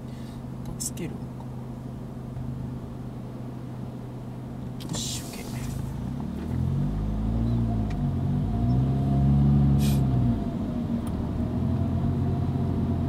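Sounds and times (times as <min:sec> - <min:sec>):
car engine revving from inside: 0:04.8 - 0:13.0.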